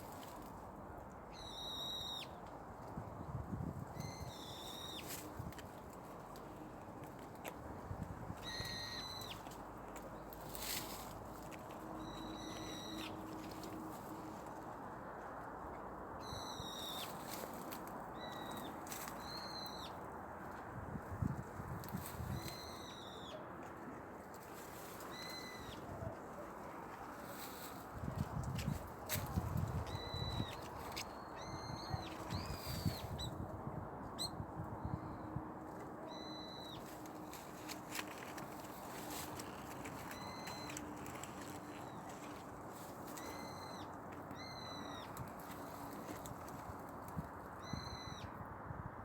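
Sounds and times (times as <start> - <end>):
bird whistling: 8.4 - 9.4
bird calling: 39.1 - 42.4.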